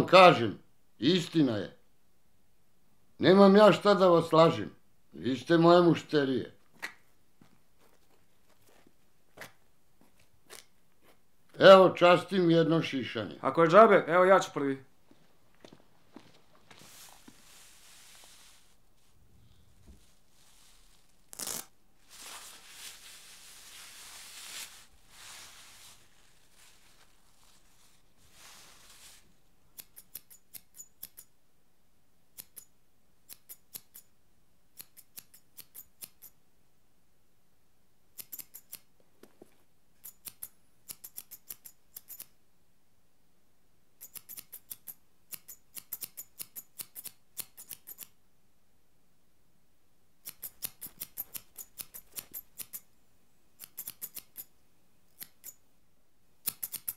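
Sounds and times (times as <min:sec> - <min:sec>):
rustling and hissing: 0:16.3 - 0:29.4
scissors snipping hair: 0:29.7 - 0:31.3, 0:32.4 - 0:32.7, 0:33.3 - 0:34.1, 0:34.8 - 0:36.4, 0:38.2 - 0:38.9, 0:40.0 - 0:42.4, 0:44.0 - 0:48.2, 0:50.2 - 0:52.9, 0:53.6 - 0:54.5, 0:55.1 - 0:55.6, 0:56.4 - 0:56.9
sharp click: 0:44.0 - 0:48.2, 0:53.6 - 0:54.5, 0:56.4 - 0:56.9.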